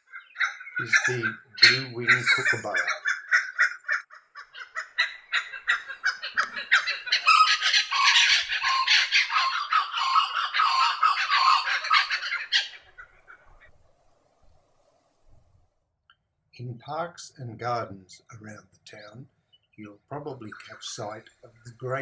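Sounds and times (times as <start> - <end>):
kookaburra calling: 0.0 - 13.7, 20.4 - 22.0.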